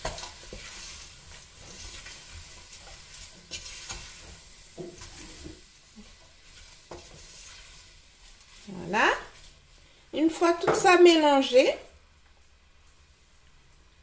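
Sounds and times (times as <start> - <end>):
food sizzling in hot oil: 0.0 - 11.2.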